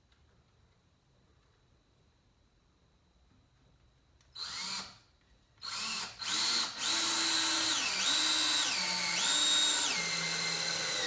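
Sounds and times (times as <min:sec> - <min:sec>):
electric drill running: 0:04.4 - 0:04.9, 0:05.6 - 0:11.0.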